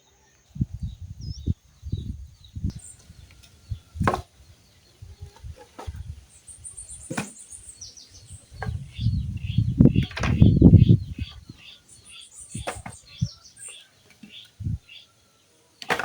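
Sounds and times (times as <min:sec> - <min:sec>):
small birds chirping: 0:00.0 - 0:16.0
low rumbling: 0:08.2 - 0:11.6.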